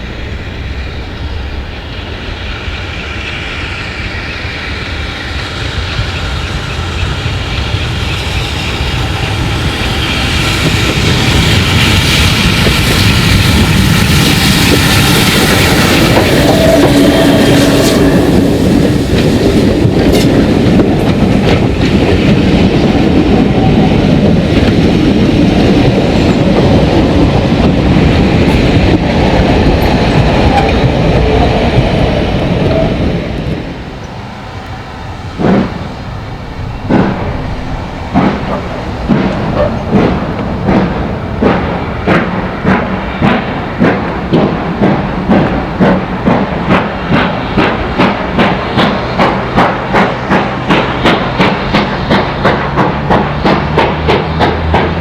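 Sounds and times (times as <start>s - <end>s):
steam train passing: 0.0s - 55.0s
wheels clicking over rail joints: 5.7s - 55.0s.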